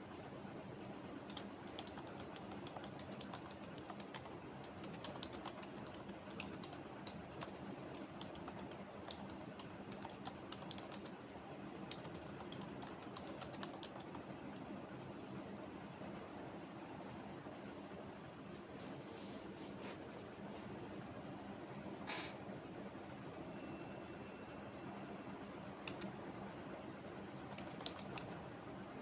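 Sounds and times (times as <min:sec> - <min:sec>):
low background hum: 0:00.0 - 0:29.0
keyboard typing clicks: 0:01.3 - 0:11.2, 0:11.9 - 0:14.2, 0:25.8 - 0:26.2, 0:27.4 - 0:28.4.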